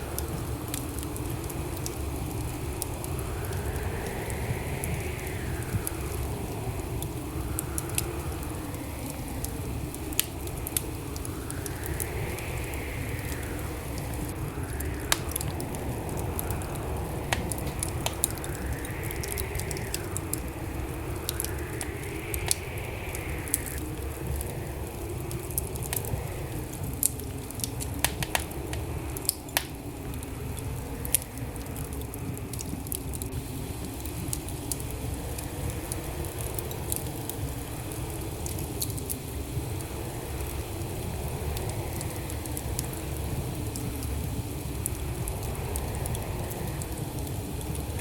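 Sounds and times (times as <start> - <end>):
logs crackling and popping: 0.0 - 48.0
low rumble of flames: 0.0 - 48.0
faint whistle: 3.1 - 9.6, 10.8 - 23.9.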